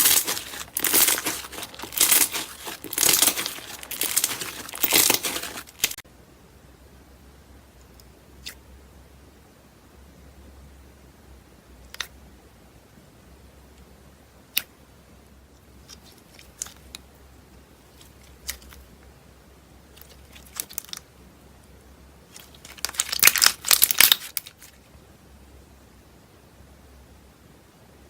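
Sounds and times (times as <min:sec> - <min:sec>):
slime popping and crackling: 0:00.0 - 0:06.0, 0:22.4 - 0:24.7.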